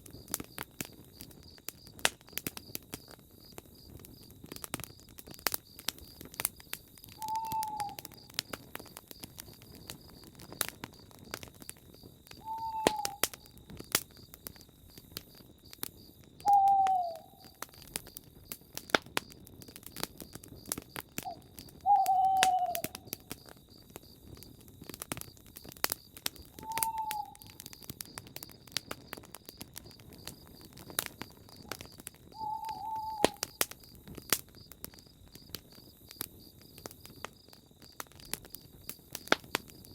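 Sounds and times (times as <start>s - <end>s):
campfire crackling and popping: 0.0s - 39.9s
insects chirring: 0.0s - 39.9s
owl hooting: 7.2s - 8.0s, 12.4s - 13.3s, 16.5s - 17.6s, 21.2s - 23.1s, 26.6s - 27.6s, 32.3s - 33.6s.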